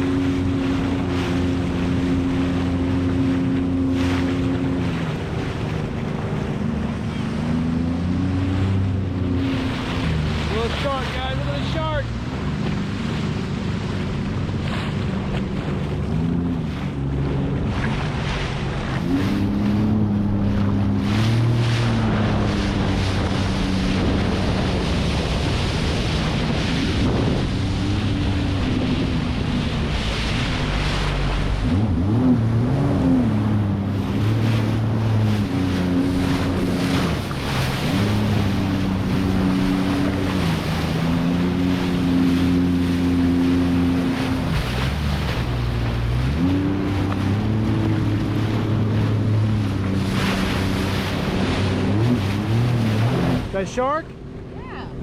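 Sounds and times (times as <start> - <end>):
jet ski engine revving: 0.0 - 55.0
water rushing: 0.0 - 55.0
wind on microphone: 11.8 - 53.6.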